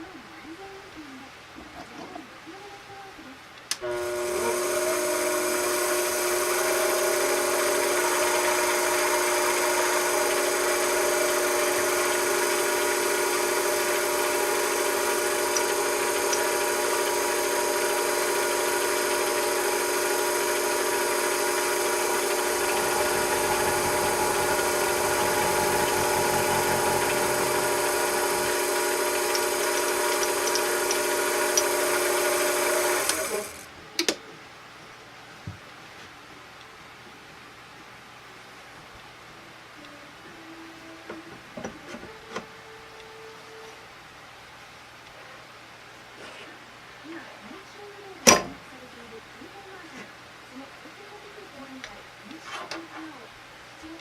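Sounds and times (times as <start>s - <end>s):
electric motor whining: 3.8s - 33.6s.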